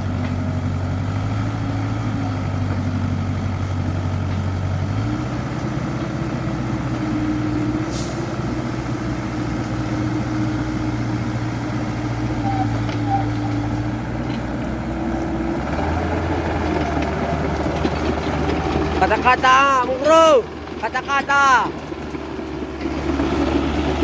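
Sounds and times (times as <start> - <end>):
excavator diesel engine running: 0.0 - 24.0
short hiss: 7.9 - 8.3.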